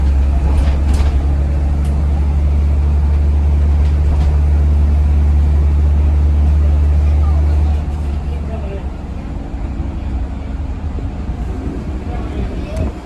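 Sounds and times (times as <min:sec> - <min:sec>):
diesel bus engine droning: 0:00.0 - 0:13.0.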